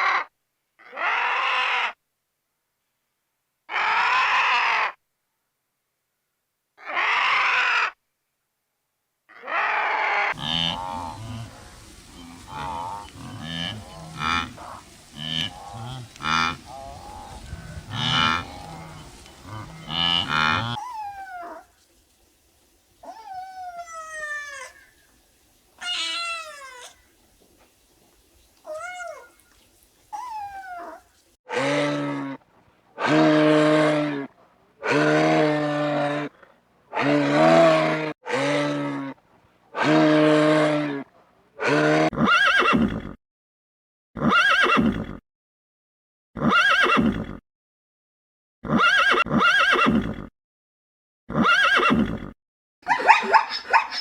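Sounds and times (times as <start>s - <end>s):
farm animals calling: 9.3s - 32.4s, 33.0s - 36.3s, 36.9s - 39.2s, 41.6s - 42.9s, 52.9s - 54.0s
buffalo mooing: 10.3s - 21.6s, 30.4s - 32.4s, 37.0s - 39.1s
kitten meowing: 25.8s - 27.0s, 28.6s - 29.4s.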